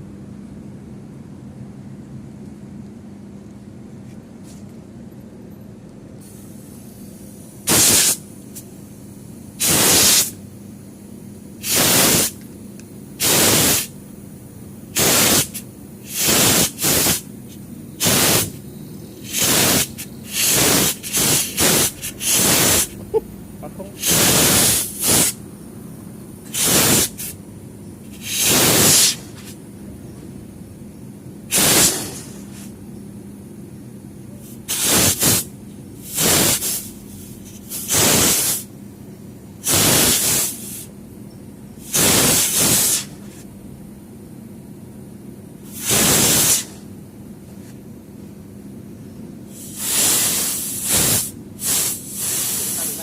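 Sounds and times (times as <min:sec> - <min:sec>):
compressed gas hissing through pipe: 0:06.2 - 0:25.5, 0:26.3 - 0:29.7, 0:30.6 - 0:32.8, 0:33.8 - 0:38.8, 0:39.6 - 0:41.0, 0:41.7 - 0:43.5, 0:45.6 - 0:47.0, 0:49.4 - 0:53.0.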